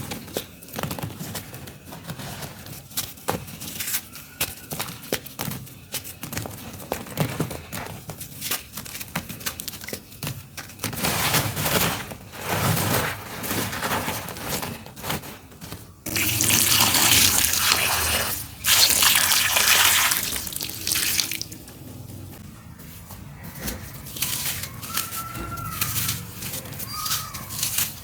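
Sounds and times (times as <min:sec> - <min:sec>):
dry dirt crumbling: 0:15.9 - 0:22.4
dirt spilling in streams: 0:16.1 - 0:21.6.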